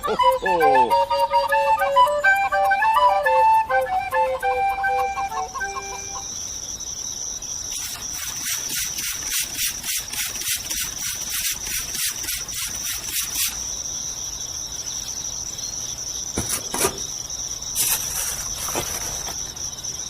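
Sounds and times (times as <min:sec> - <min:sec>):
flute melody: 0:00.0 - 0:06.3
insects chirping: 0:00.0 - 0:20.0.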